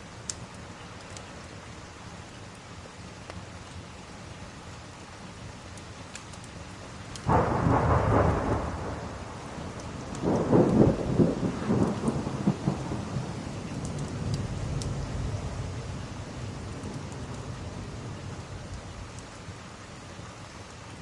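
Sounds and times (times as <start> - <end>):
steady rain: 0.0 - 21.0
thunder rumbling: 7.2 - 19.4.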